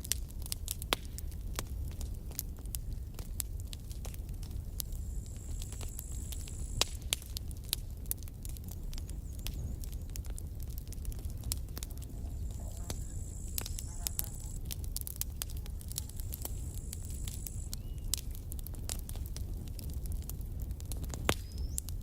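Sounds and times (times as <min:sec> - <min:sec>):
campfire crackling and popping: 0:00.0 - 0:22.0
faint high whine: 0:11.8 - 0:14.7, 0:15.5 - 0:18.1.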